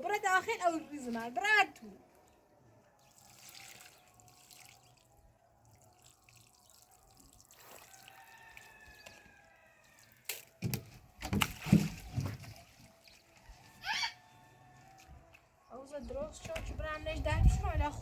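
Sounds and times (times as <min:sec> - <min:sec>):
water trickling and dripping: 0:03.0 - 0:13.8.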